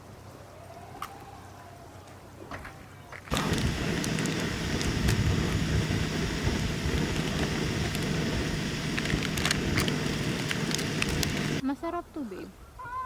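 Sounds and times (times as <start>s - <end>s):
steady rushing noise: 3.3s - 11.6s.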